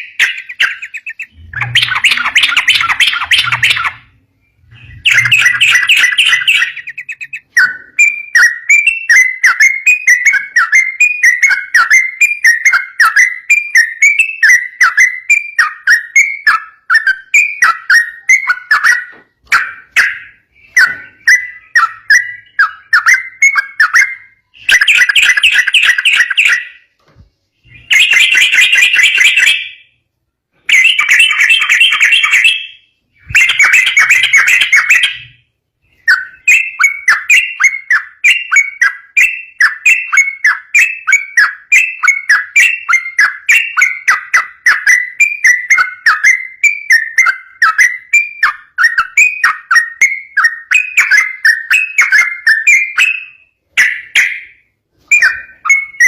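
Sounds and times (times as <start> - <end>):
bulbul singing bubbly phrases: 0.0 - 7.3
bird chattering: 0.0 - 26.8, 30.7 - 35.4.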